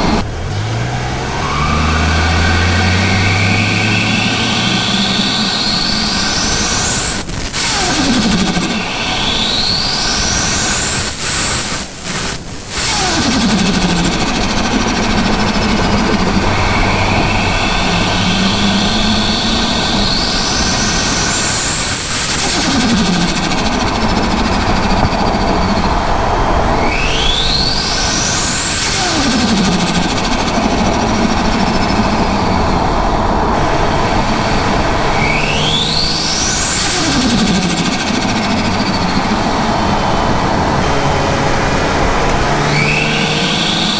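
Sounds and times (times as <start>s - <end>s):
car engine revving: 0.0s - 43.9s
turbo whistle: 1.4s - 32.8s
turbo flutter chatter: 2.4s - 43.9s.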